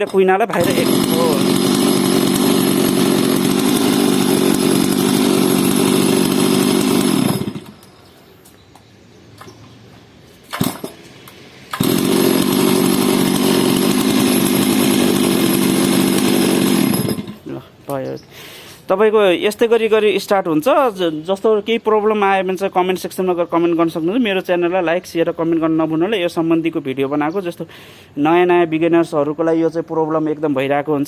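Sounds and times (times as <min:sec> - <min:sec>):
chainsaw engine running: 0:00.5 - 0:07.9, 0:10.6 - 0:11.0, 0:11.7 - 0:17.6.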